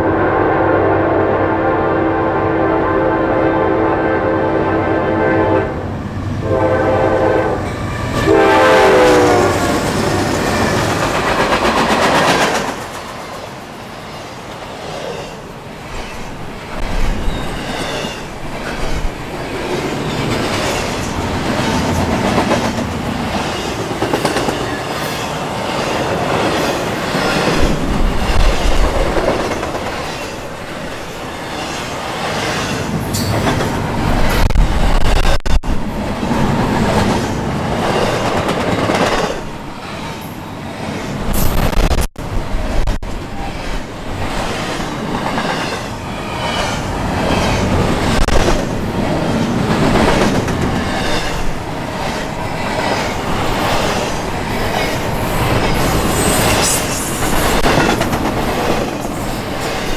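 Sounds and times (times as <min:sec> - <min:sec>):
locomotive horn blasts: 0:00.0 - 0:09.7
freight train wheel clatter: 0:09.7 - 0:13.7, 0:44.2 - 0:59.9.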